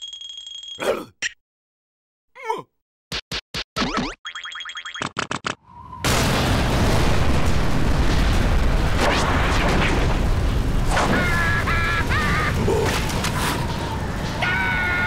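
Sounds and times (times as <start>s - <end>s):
cartoon rumbling boom: 5.8s - 15.0s.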